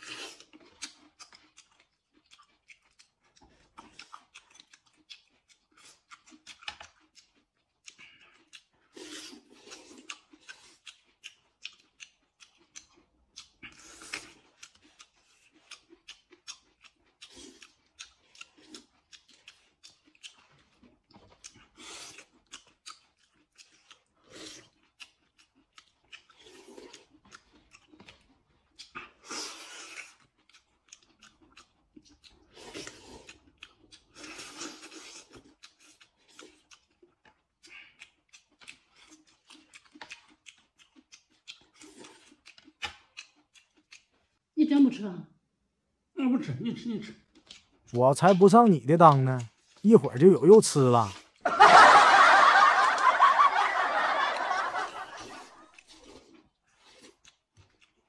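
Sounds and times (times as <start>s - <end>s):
person chewing: 0.0s - 44.5s, 46.5s - 51.6s, 53.8s - 58.0s
noodles being slurped: 13.4s - 16.1s, 32.0s - 44.1s, 53.8s - 58.0s.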